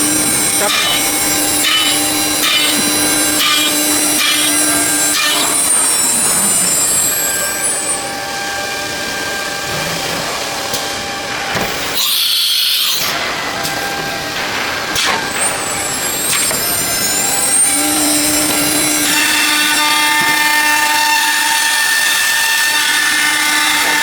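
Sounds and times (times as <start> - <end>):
router spindle cutting wood: 0.0 - 9.6, 16.3 - 24.0.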